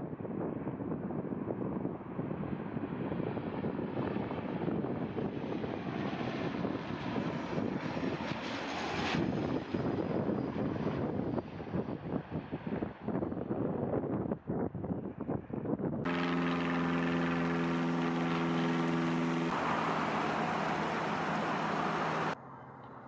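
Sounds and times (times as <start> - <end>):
wind buffeting microphone: 0.0 - 22.4
aircraft engine rumble: 16.1 - 23.0.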